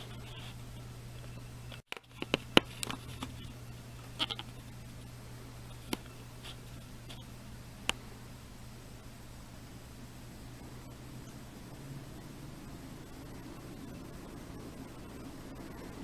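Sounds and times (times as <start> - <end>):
ceiling fan motor hum: 0.0 - 16.0.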